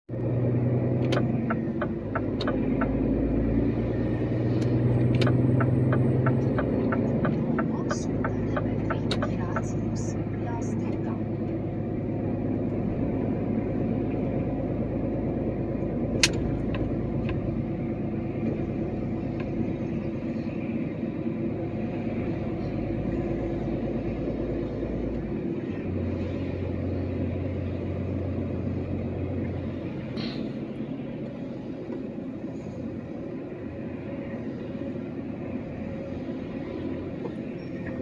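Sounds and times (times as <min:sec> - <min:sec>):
truck diesel engine running: 0:00.1 - 0:38.0
sharp click: 0:16.2 - 0:16.8.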